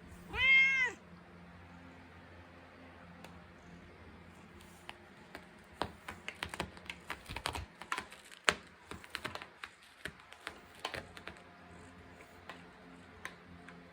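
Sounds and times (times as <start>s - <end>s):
cat claws raking carpet: 4.5s - 13.0s.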